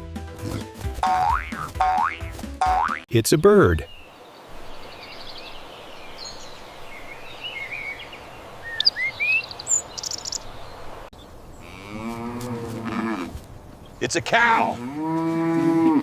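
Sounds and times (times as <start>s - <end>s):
bird chirping and trilling: 2.7s - 12.0s
outdoor background hiss: 3.1s - 15.9s
cow mooing: 11.6s - 13.4s, 14.6s - 16.0s.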